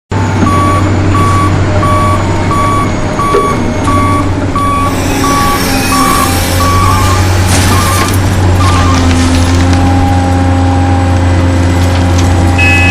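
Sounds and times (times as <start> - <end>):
low engine hum: 0.1 - 12.9
toy truck reversing beeper: 0.4 - 9.2, 12.6 - 12.9.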